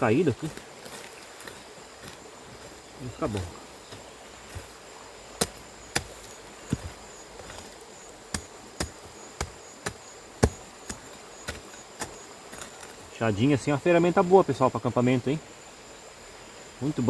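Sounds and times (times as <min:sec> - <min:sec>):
hand hoe chopping into ground: 0:00.4 - 0:04.8, 0:05.4 - 0:13.1.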